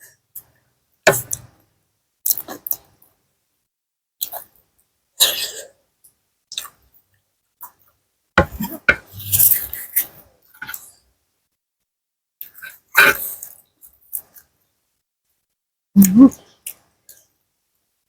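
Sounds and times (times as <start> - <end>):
person chewing and slurping: 8.6 - 9.9.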